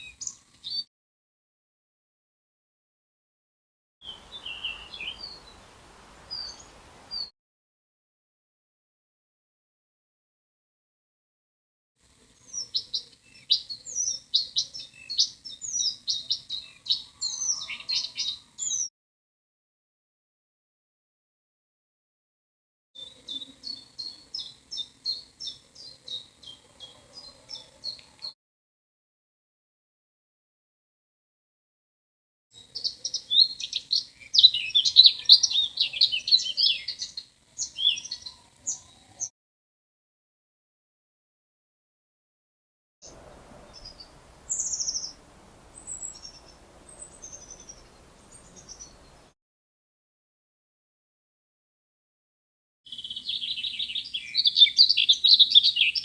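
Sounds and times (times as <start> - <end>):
birds chirping: 4.0 - 7.3, 43.0 - 49.3.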